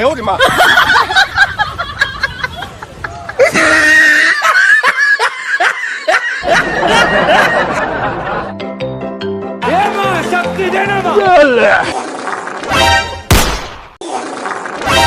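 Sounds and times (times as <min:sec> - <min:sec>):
people laughing: 0:00.3 - 0:08.5.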